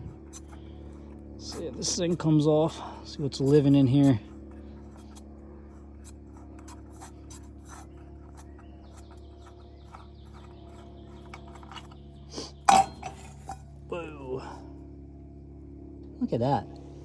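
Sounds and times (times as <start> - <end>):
steady low hum: 0.0 - 17.0
hands scratching and rubbing: 3.1 - 12.4.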